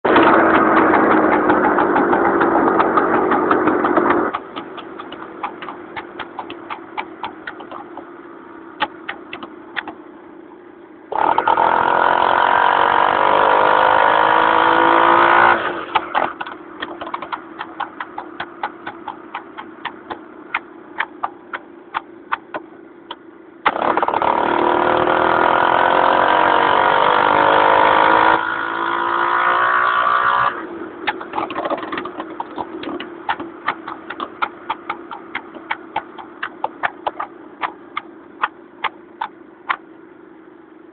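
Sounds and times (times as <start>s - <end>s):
motorcycle engine revving: 0.0s - 10.1s, 11.1s - 39.8s
engine misfire pops: 0.1s - 10.0s, 15.7s - 24.6s, 31.0s - 39.9s.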